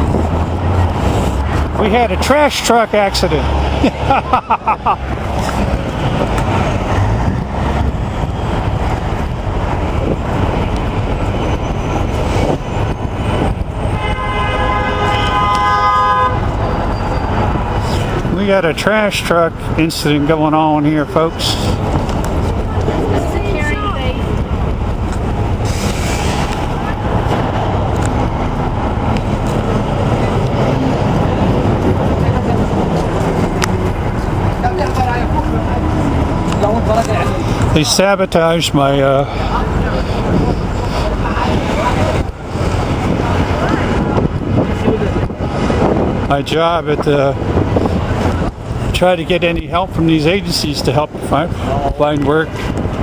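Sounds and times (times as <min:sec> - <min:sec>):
street traffic engine rumble: 0:00.0 - 0:53.0
vehicle horn: 0:13.9 - 0:16.8.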